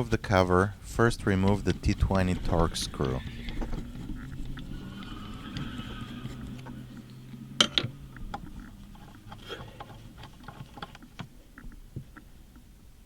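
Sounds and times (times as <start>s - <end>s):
small clicks and ticks: 3.0s - 12.7s.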